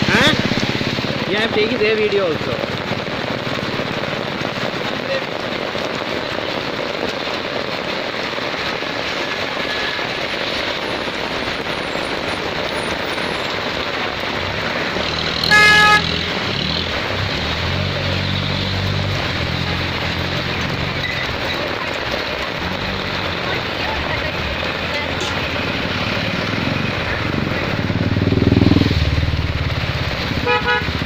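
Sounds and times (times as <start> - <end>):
vehicle engine humming: 0.0 - 4.5, 10.3 - 31.0
heavy rain hissing: 0.0 - 31.0
vehicle horn blast: 15.4 - 16.1, 30.4 - 30.9.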